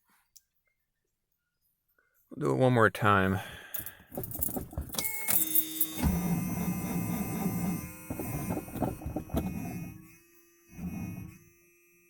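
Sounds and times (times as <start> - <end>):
engine cranking without firing: 3.8 - 10.1.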